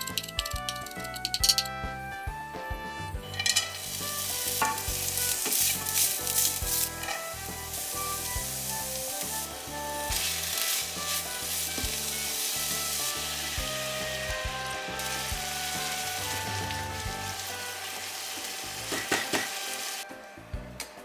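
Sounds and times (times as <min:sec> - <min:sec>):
food sizzling in frying pan: 0:03.3 - 0:20.1.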